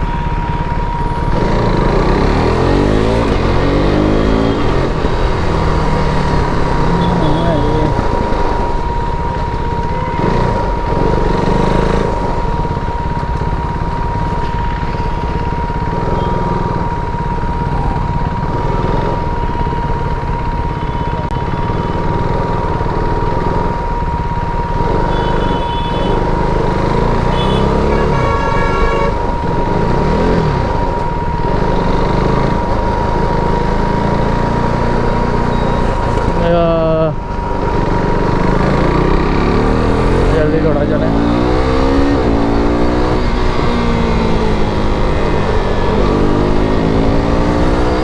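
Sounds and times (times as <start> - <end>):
motorcycle engine revving: 0.0 - 48.0
vehicle horns honking: 6.8 - 8.1, 9.8 - 10.7, 25.0 - 26.3, 27.2 - 29.4.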